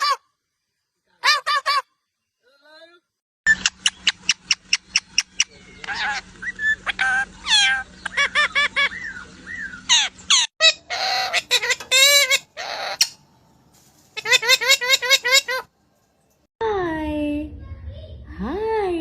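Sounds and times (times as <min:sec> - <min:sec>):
parrot calling and whistling: 0:03.5 - 0:13.2, 0:14.2 - 0:15.7
parrot screeching: 0:05.9 - 0:13.2, 0:14.2 - 0:15.7.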